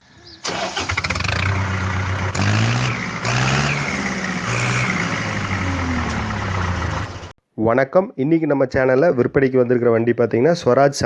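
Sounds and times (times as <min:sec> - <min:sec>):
tractor diesel engine revving: 0:00.2 - 0:07.4.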